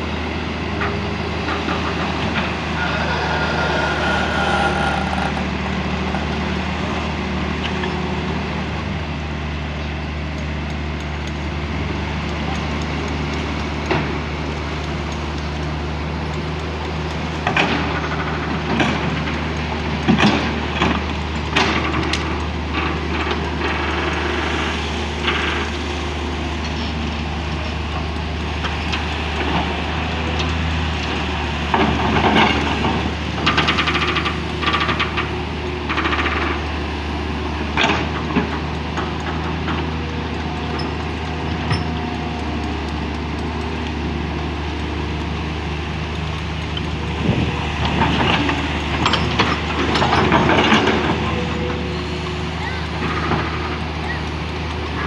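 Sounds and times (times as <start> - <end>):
excavator diesel engine running: 0.0 - 55.0
machine clanking and scraping: 0.8 - 8.0, 17.4 - 25.8, 30.3 - 36.7, 37.5 - 42.7, 46.6 - 52.1, 52.7 - 54.2.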